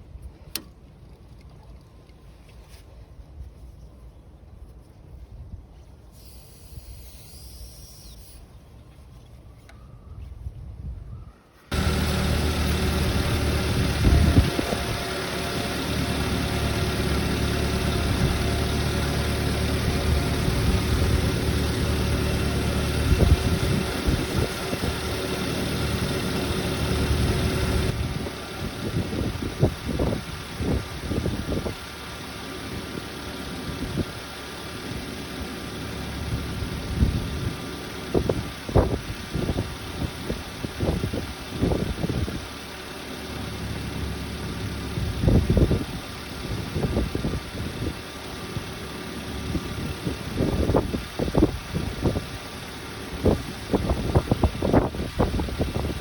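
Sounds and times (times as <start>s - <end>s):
truck engine idling: 11.7s - 56.0s.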